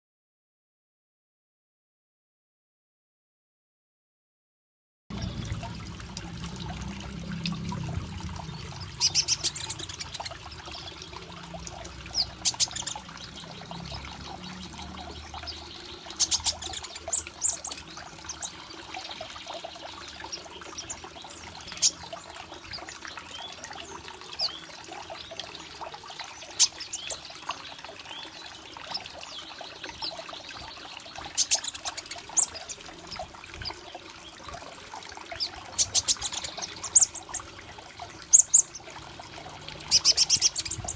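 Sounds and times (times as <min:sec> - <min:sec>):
water pouring and trickling: 0:05.1 - 0:40.9
small bird chirping: 0:08.4 - 0:11.1, 0:12.1 - 0:19.6, 0:39.9 - 0:40.9.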